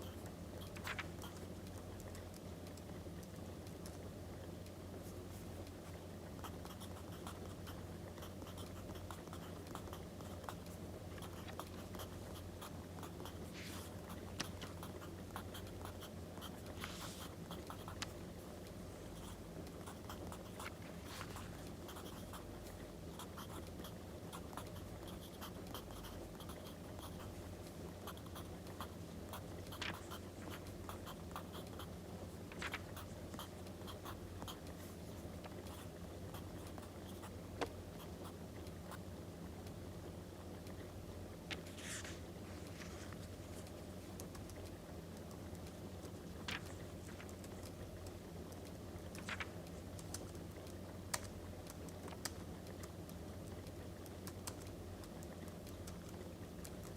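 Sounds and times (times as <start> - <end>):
low steady hum: 0.0 - 56.9.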